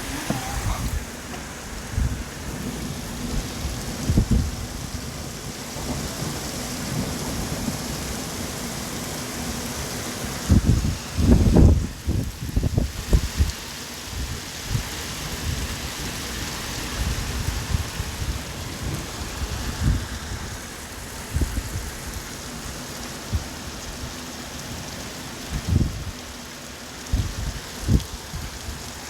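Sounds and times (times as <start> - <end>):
wind gusting: 0.0 - 4.9
heavy rain hissing: 0.0 - 29.0.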